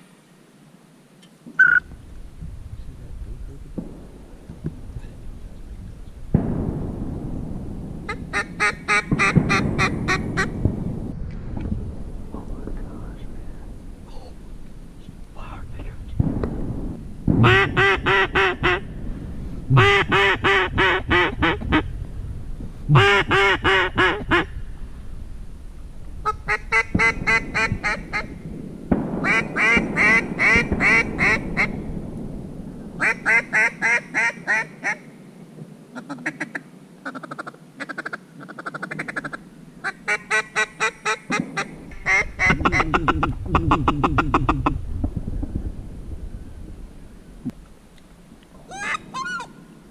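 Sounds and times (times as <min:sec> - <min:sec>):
low rumble: 0:01.9 - 0:33.6, 0:41.8 - 0:47.8
duck call quacks: 0:19.8 - 0:21.8, 0:22.9 - 0:24.5, 0:36.0 - 0:44.7, 0:48.7 - 0:49.6.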